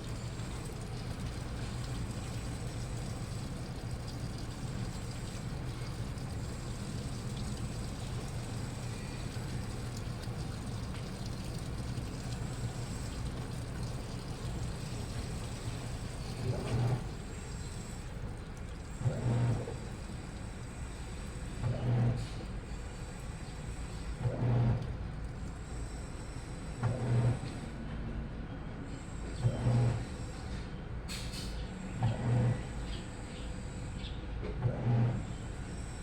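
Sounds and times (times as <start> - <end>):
washing machine humming: 0.0 - 27.5.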